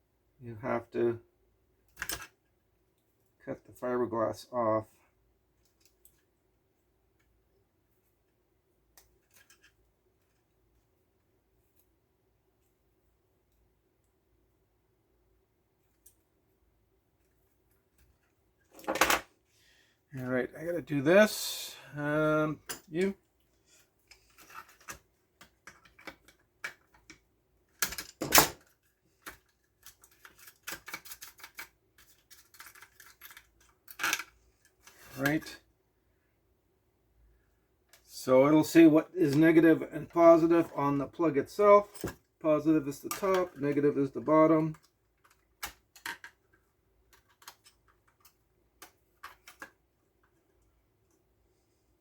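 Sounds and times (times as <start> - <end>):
light clicks and taps of tools: 15.8 - 16.3, 44.7 - 51.3.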